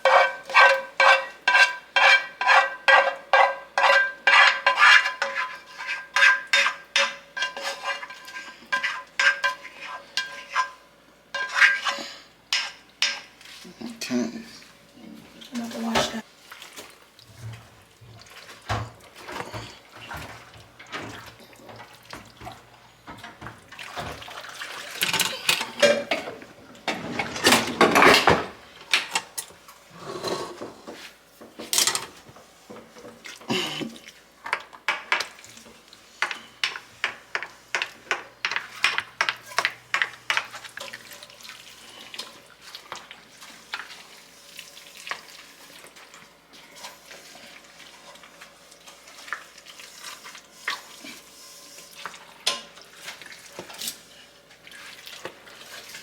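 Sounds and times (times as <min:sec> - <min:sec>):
dishes and utensils clinking: 0:00.0 - 0:13.4, 0:18.7 - 0:32.2, 0:52.4 - 0:52.8
tap water running: 0:14.2 - 0:29.6, 0:30.2 - 0:56.0.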